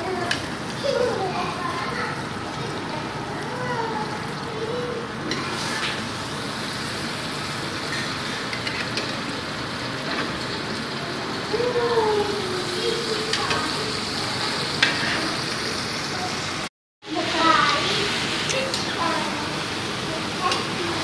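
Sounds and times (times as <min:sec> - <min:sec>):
chicken sizzling in a pan: 0:00.0 - 0:21.0
spatula scraping a pan: 0:14.8 - 0:15.3.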